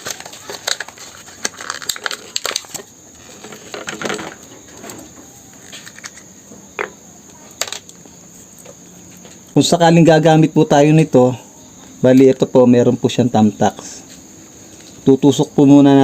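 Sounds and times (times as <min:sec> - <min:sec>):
plastic crackling: 0:00.0 - 0:06.9, 0:07.5 - 0:08.0.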